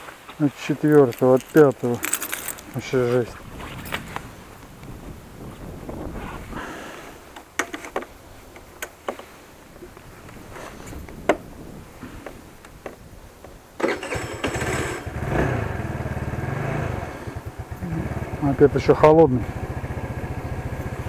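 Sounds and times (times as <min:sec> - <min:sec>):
sharp clicks and knocks: 0:07.4 - 0:09.3
small engine running: 0:13.9 - 0:18.5.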